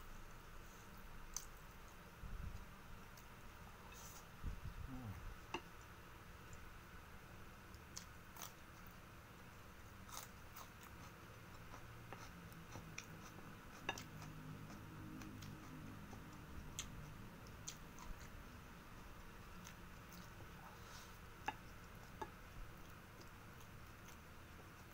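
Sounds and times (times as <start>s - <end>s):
quiet chewing: 7.6s - 24.9s.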